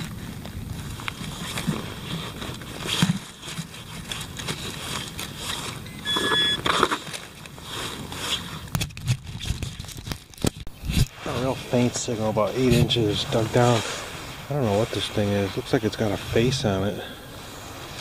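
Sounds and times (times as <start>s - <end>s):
metal detector beep: 5.8s - 6.8s.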